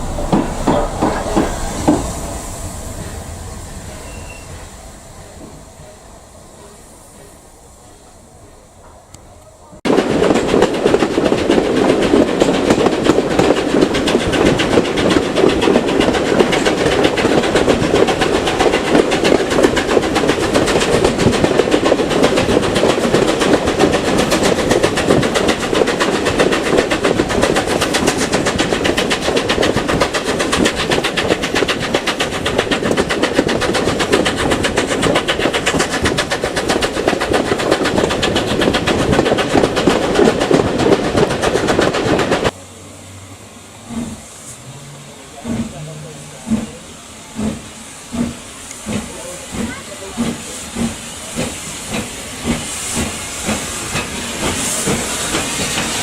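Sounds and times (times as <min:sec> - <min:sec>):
train running on track: 0:00.0 - 0:56.0.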